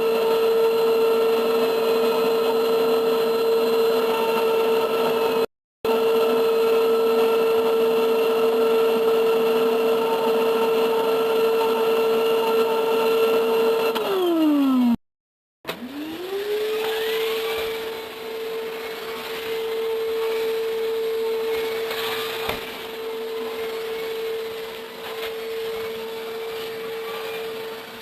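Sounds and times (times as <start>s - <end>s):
vacuum cleaner motor whine: 0.0s - 15.0s, 15.7s - 28.0s.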